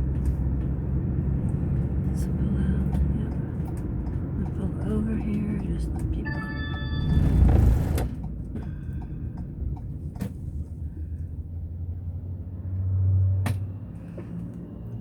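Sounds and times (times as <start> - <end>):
car road and engine rumble: 0.0 - 15.0
low hum: 6.2 - 9.8.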